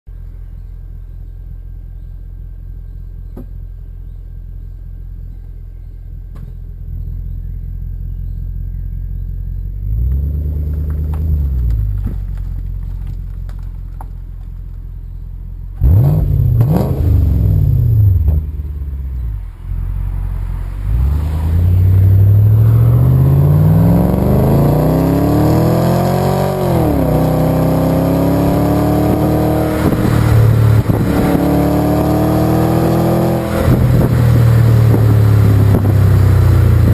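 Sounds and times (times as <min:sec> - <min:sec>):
car engine revving and accelerating: 0:09.4 - 0:12.1, 0:15.7 - 0:36.9.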